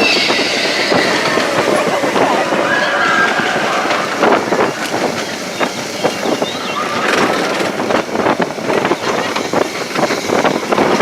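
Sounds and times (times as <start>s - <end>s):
brief squeal or cry: 0.0s - 1.4s
roller coaster rattling on track: 0.0s - 11.0s.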